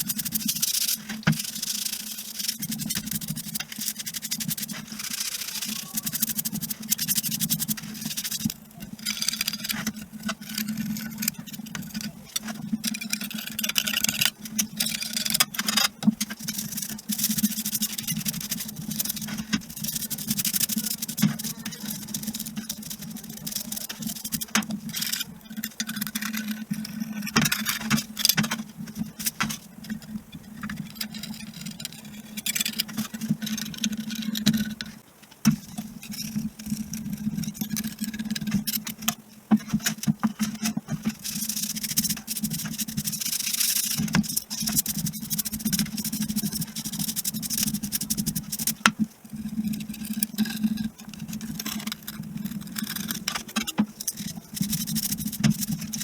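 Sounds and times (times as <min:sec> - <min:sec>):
scrubbing and scraping metal parts: 0:00.0 - 0:56.0.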